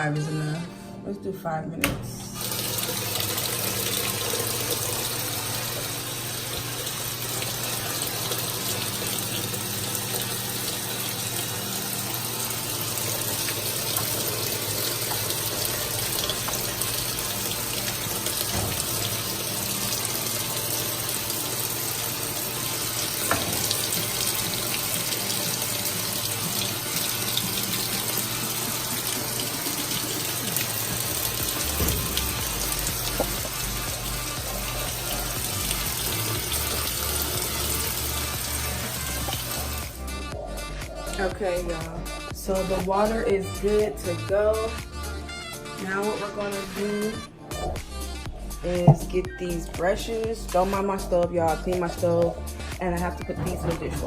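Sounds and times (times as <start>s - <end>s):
water rushing into drum: 2.4s - 40.1s, 47.5s - 49.2s, 53.2s - 54.0s.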